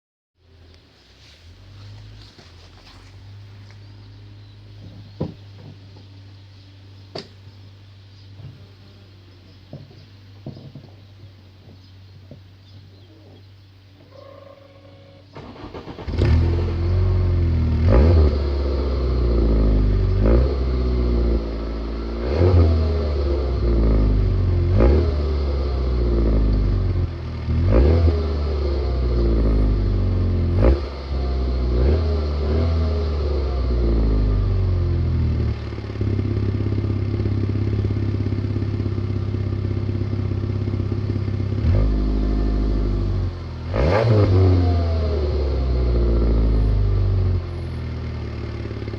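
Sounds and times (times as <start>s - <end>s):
car engine revving through exhaust: 15.4s - 48.9s.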